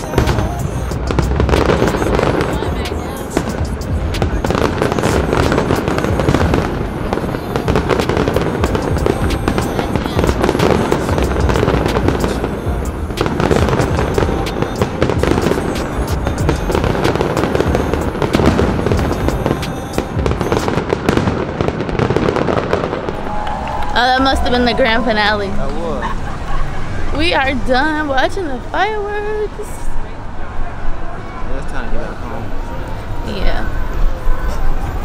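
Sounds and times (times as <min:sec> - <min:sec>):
fireworks bangs and crackles: 0:00.0 - 0:26.2.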